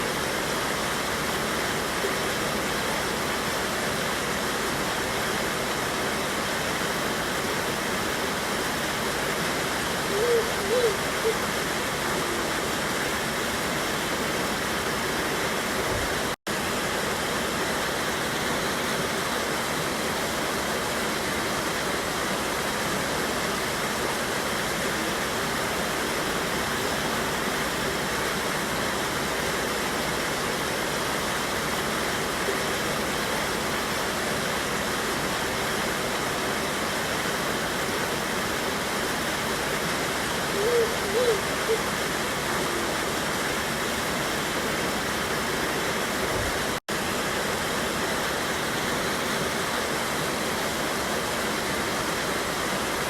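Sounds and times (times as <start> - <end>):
water rushing over rocks: 0.0 - 53.0.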